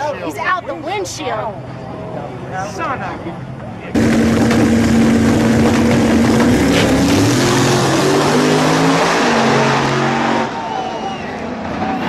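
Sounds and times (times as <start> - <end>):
race car engines at full throttle: 3.3 - 12.0.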